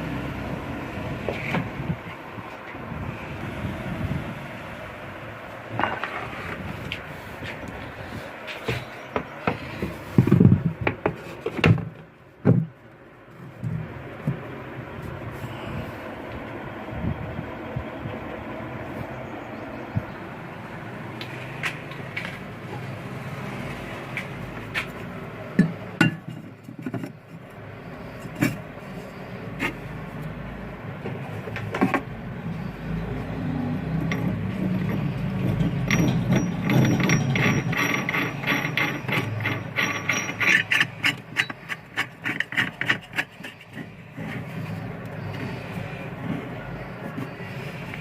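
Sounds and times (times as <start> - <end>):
tools clinking on metal: 34.0 - 41.8
rapid metallic clicking: 34.0 - 43.7.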